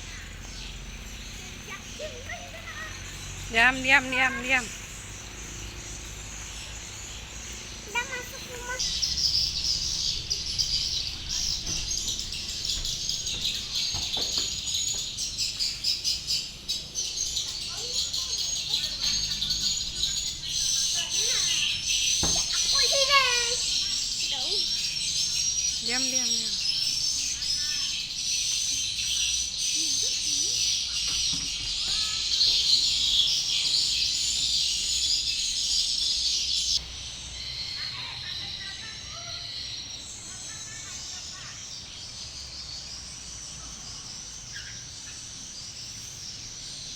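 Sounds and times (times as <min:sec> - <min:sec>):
swiftlets twittering: 0:01.6 - 0:28.1
faint knocks: 0:11.1 - 0:15.1.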